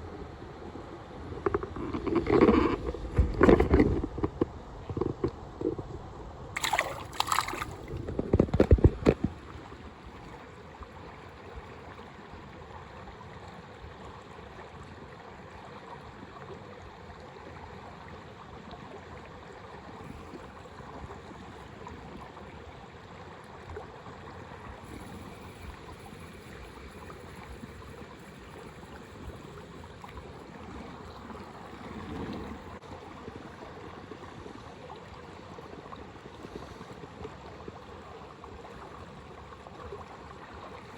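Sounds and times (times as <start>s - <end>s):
mountain river flowing: 6.6s - 11.4s.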